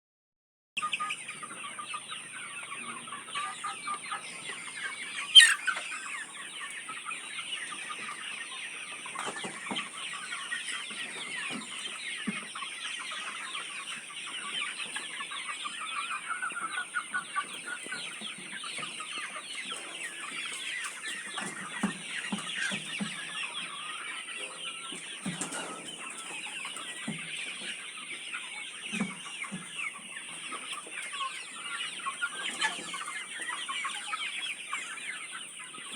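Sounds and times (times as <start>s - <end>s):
chickens clucking and calling: 0.8s - 35.9s
loud sharp chicken squawk: 5.2s - 6.0s.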